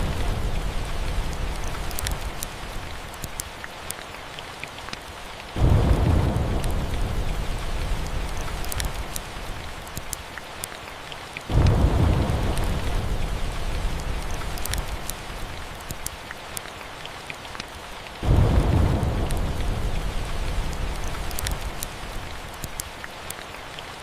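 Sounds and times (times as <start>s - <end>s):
thunder rumbling: 0.0s - 2.8s, 5.6s - 9.8s, 11.5s - 15.9s, 18.2s - 22.6s
steady rain: 0.0s - 24.0s
wood fire crackling: 0.0s - 24.0s.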